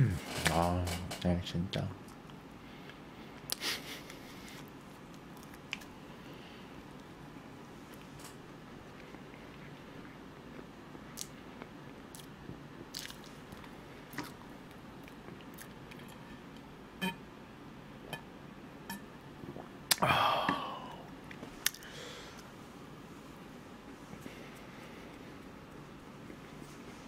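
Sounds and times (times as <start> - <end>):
person chewing bread: 4.5 - 6.1, 7.9 - 16.6
wet mouth clicks: 11.1 - 11.4.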